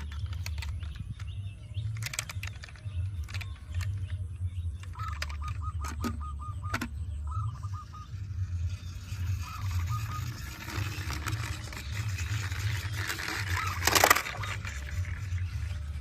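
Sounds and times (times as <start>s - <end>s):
bird chattering call: 4.7s - 15.8s.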